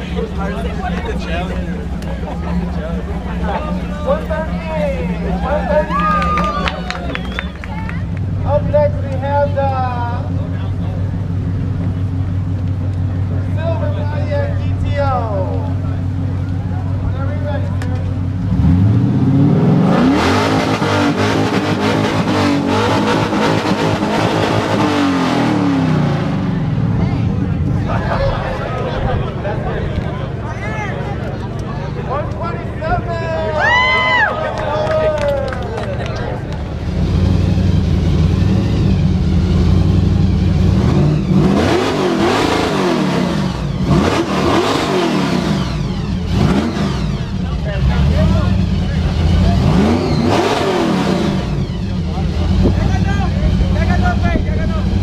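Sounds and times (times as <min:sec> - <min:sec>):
car engine revving: 0:00.0 - 0:33.3, 0:34.1 - 0:55.0.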